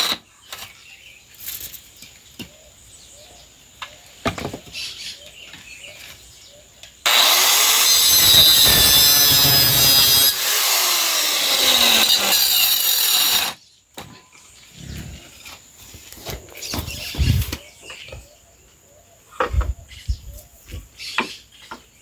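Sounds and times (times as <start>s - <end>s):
power saw cutting wood: 7.1s - 13.6s.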